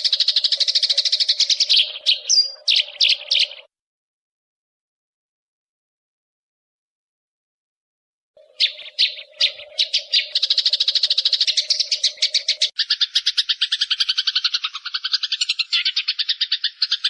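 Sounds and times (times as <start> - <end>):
bird chirping: 0.0 - 3.7, 8.4 - 17.0
bird trill: 0.0 - 3.7, 8.4 - 17.0.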